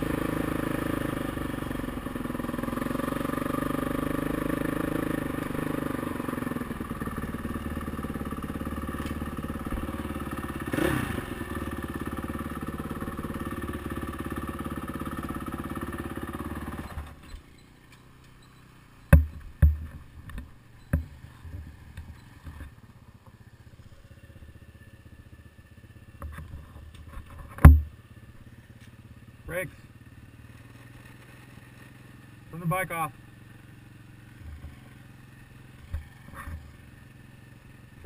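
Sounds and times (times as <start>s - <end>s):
dirt bike engine idling: 0.0s - 38.0s
sharp knocks and clunks: 19.1s - 22.7s, 26.2s - 28.0s.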